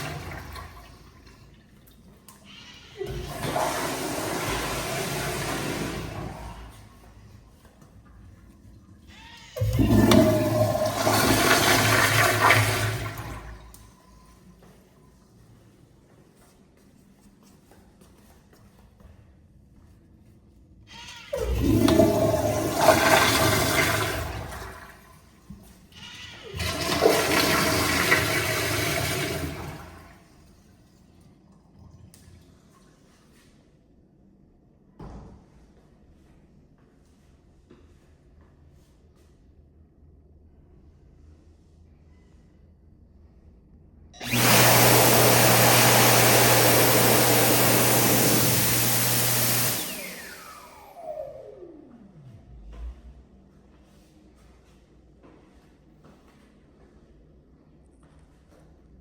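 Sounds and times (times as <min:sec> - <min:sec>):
toilet flushing: 0:00.0 - 0:07.4, 0:09.5 - 0:14.0, 0:21.3 - 0:25.5, 0:26.2 - 0:30.6, 0:44.2 - 0:51.8
hand dryer blowing air: 0:03.1 - 0:06.8, 0:09.6 - 0:13.4, 0:21.4 - 0:24.7, 0:26.6 - 0:29.9, 0:44.2 - 0:51.8
motor spinning down whine: 0:44.2 - 0:53.2.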